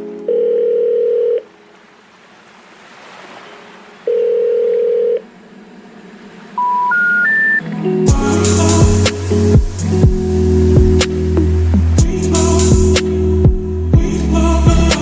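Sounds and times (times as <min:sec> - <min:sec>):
telephone ringing tone beeps: 0:00.3 - 0:01.5, 0:04.1 - 0:05.2, 0:06.6 - 0:07.6
short rising telephone beeps: 0:06.6 - 0:07.6
faint line hiss: 0:07.6 - 0:13.3.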